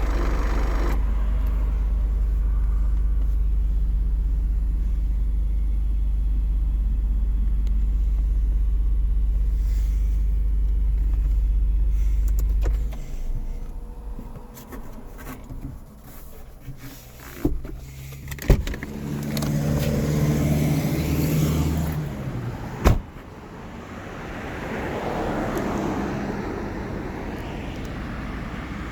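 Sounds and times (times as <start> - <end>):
steady low hum: 0.0 - 18.8.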